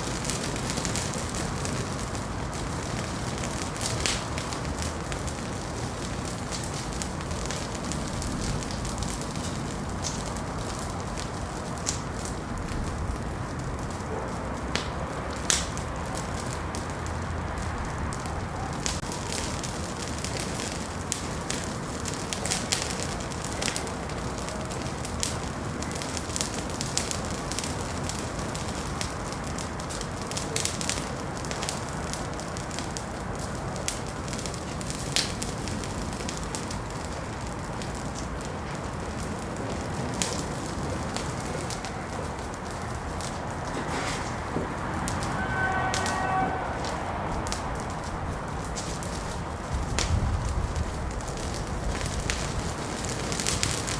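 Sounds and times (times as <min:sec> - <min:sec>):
fire crackling and popping: 0:00.0 - 0:53.9
fire flame rushing: 0:00.0 - 0:53.9.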